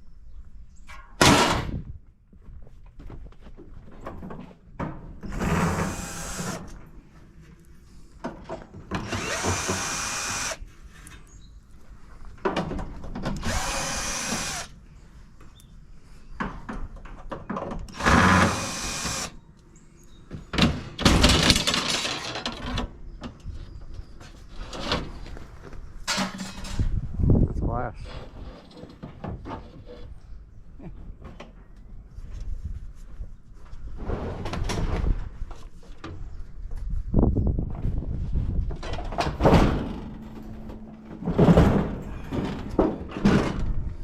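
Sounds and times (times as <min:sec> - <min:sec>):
power drill running: 0:05.6 - 0:06.7, 0:09.0 - 0:10.6, 0:13.4 - 0:14.8, 0:17.9 - 0:19.4.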